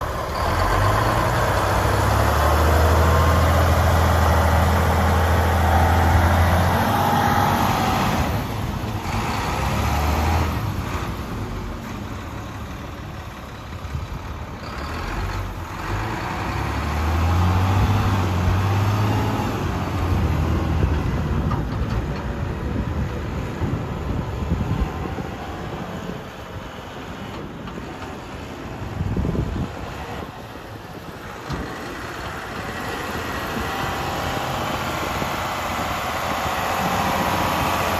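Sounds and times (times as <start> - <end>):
diesel truck engine droning: 0.0 - 37.9.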